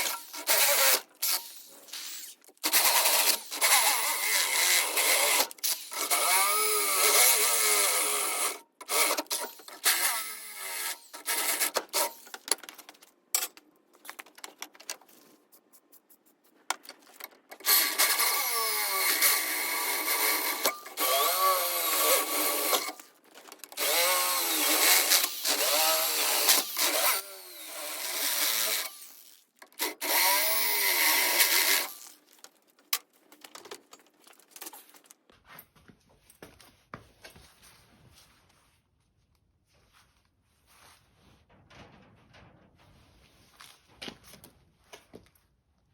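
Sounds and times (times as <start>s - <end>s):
handheld power tool running: 0.0s - 12.5s, 17.6s - 23.1s, 23.8s - 32.2s
handling clicks and knocks: 12.2s - 15.2s.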